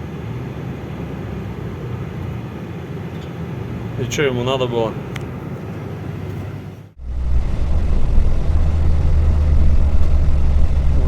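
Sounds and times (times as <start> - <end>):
truck engine brake drone: 7.0 - 11.0.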